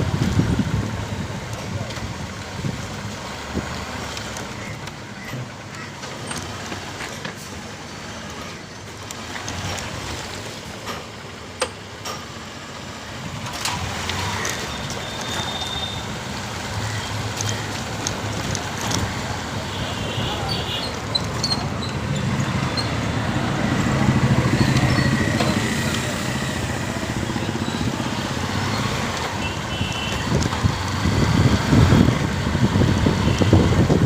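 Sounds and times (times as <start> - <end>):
motorcycle riding noise: 0.0 - 5.0, 12.7 - 34.0.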